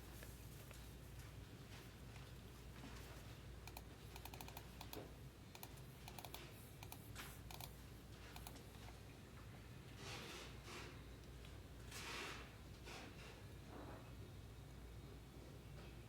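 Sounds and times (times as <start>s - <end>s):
keyboard typing: 3.6s - 8.9s.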